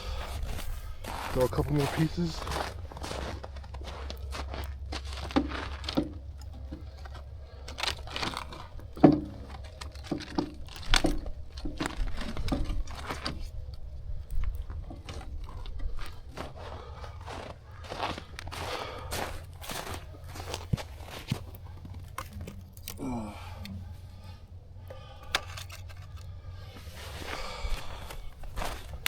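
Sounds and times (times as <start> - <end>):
firewood crunching and knocking: 0.2 - 29.0.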